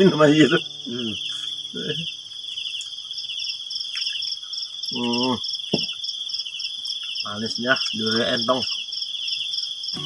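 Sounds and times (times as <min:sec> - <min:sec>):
crickets trilling: 0:00.0 - 0:10.0
insect pulsing: 0:00.0 - 0:10.0.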